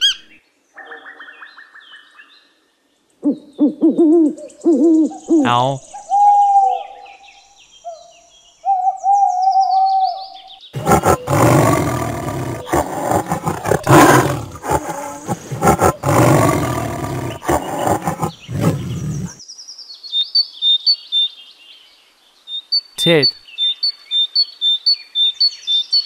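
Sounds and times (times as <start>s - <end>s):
owl hooting: 3.2s - 7.0s
tiger roaring and growling: 10.8s - 19.4s.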